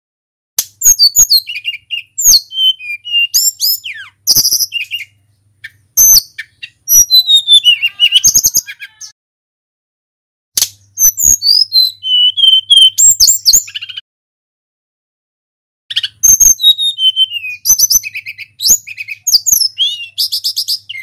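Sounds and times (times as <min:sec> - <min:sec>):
songbird singing high whistles: 0:00.8 - 0:05.2, 0:06.0 - 0:08.8, 0:11.0 - 0:14.0, 0:15.9 - 0:21.0.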